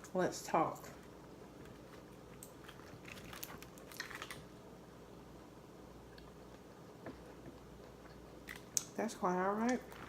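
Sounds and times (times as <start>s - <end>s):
eating clicks and smacks: 8.1s - 9.0s.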